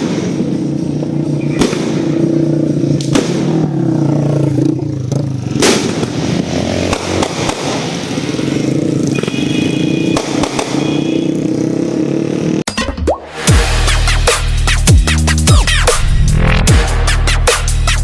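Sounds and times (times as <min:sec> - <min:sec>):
firecrackers banging: 0:00.0 - 0:11.5
engine running: 0:00.0 - 0:12.7.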